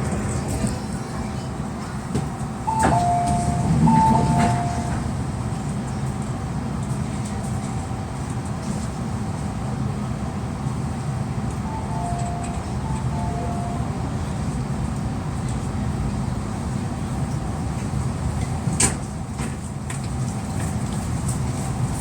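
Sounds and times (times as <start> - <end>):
train car hum and rumble: 0.0 - 22.0
two-tone electronic chime: 2.7 - 5.0, 11.7 - 14.2.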